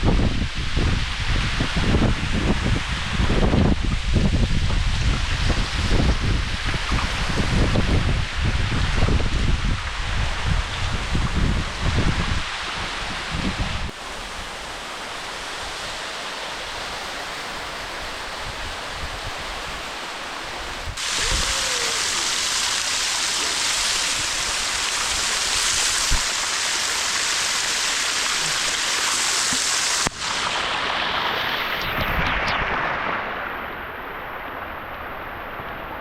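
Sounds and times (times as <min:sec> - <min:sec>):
waterfall rushing: 0:13.9 - 0:36.0.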